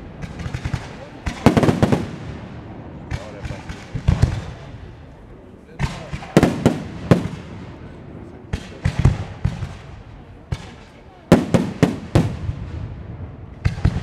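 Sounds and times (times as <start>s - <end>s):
firework shells bursting: 5.8s - 7.8s, 8.4s - 12.7s.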